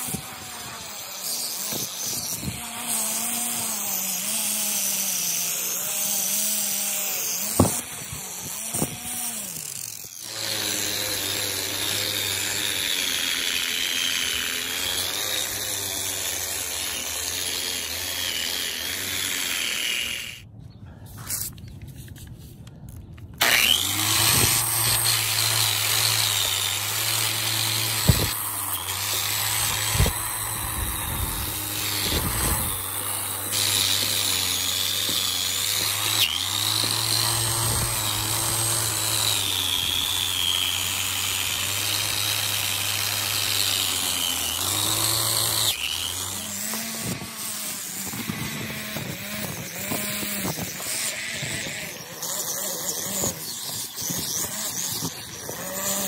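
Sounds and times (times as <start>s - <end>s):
power tool motor hum: 0.0s - 20.4s, 23.4s - 56.0s.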